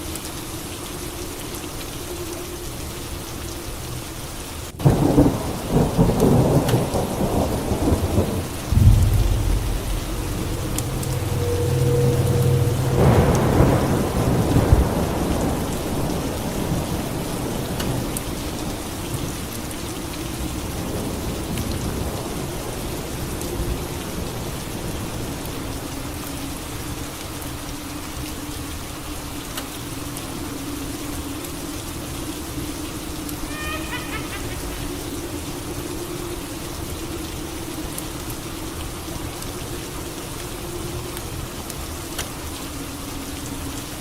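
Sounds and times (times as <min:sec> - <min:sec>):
steady rain: 0:00.0 - 0:44.0
thunderclap rumbling: 0:04.8 - 0:18.1.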